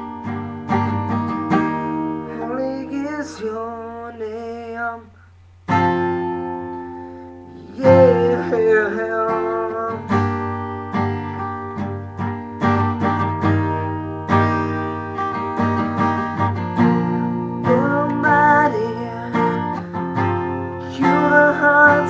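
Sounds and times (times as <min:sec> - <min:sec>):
acoustic guitar strumming chords: 0:00.0 - 0:22.0
person singing: 0:02.3 - 0:05.1, 0:07.5 - 0:10.6, 0:17.5 - 0:22.0.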